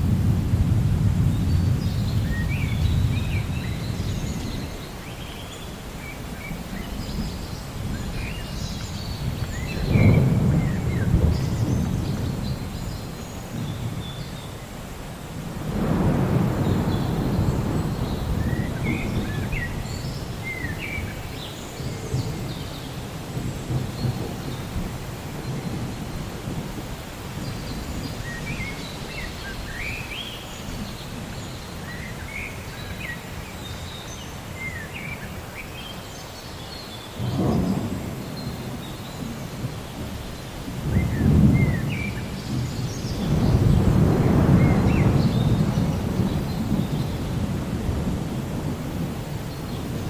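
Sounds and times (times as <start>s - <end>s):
thunder rumbling: 0.0s - 4.8s, 6.5s - 14.2s, 15.4s - 30.0s, 37.2s - 50.0s
steady rain: 0.0s - 50.0s.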